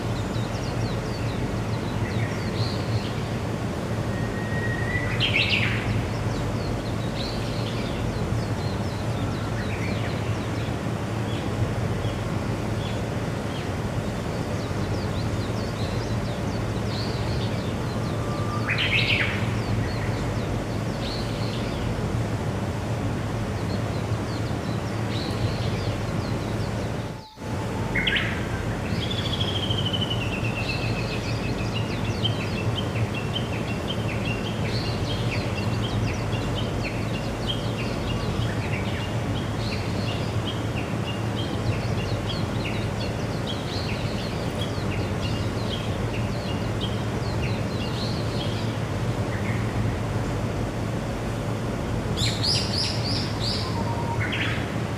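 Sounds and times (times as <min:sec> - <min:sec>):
outdoor background noise: 0:00.0 - 0:54.9
wild birds calling: 0:00.0 - 0:54.9.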